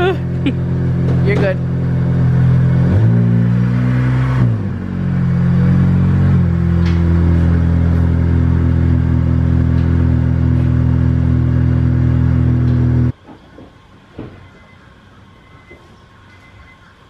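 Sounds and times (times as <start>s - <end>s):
car engine idling: 0.0s - 13.2s.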